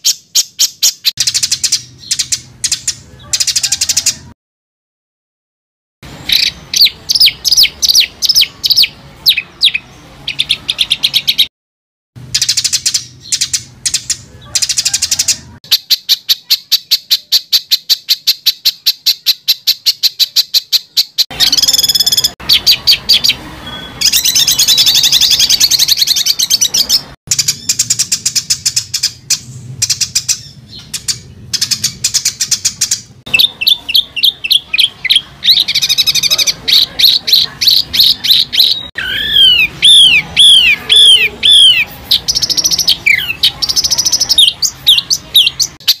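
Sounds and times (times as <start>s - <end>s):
scratchy bird song: 0.0s - 4.4s, 6.0s - 11.5s, 12.2s - 46.0s
down-slurred bird whistles: 15.8s - 26.9s, 37.0s - 46.0s.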